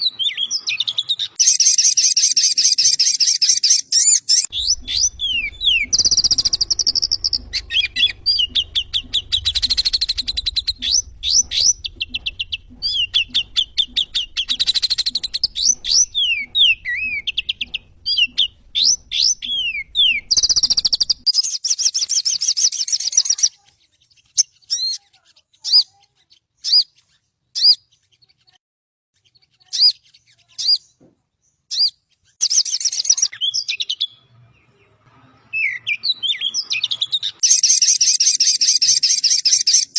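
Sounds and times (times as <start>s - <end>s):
bird chip notes: 1.4s - 21.3s
faint low hum: 4.4s - 21.3s.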